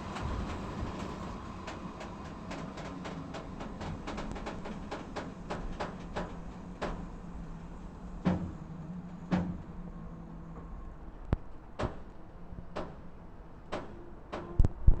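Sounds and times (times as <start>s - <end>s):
train wheels knocking over joints: 0.0s - 7.2s, 8.2s - 9.8s.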